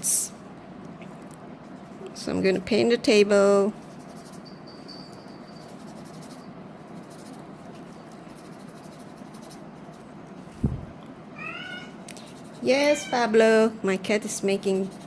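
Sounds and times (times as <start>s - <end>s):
paintbrush brushing on paper: 1.6s - 2.8s, 3.8s - 4.4s, 5.5s - 10.6s, 12.0s - 13.2s, 14.4s - 15.0s.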